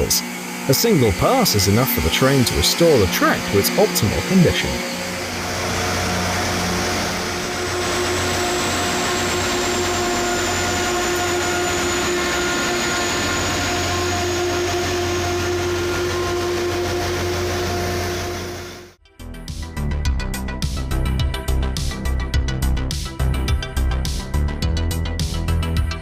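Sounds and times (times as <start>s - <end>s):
rail grinding train grinding: 0.0s - 19.0s.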